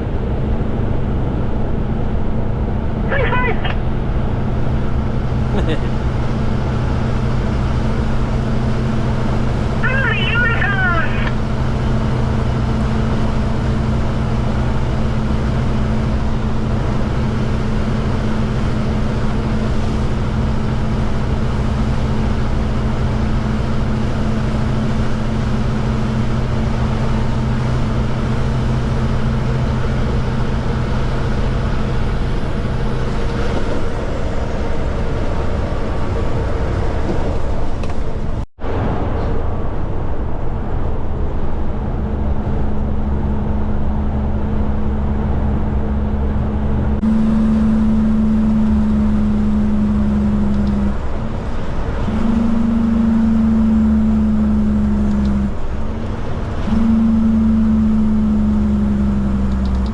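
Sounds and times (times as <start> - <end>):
diesel truck engine droning: 0.0 - 59.9
road and tyre noise: 0.0 - 59.9.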